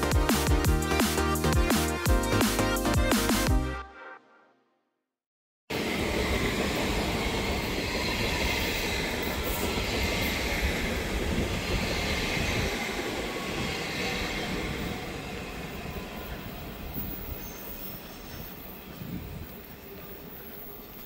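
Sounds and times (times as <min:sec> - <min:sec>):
train rumbling on rails: 0:05.7 - 0:21.0
high wheel squeal: 0:16.7 - 0:18.9.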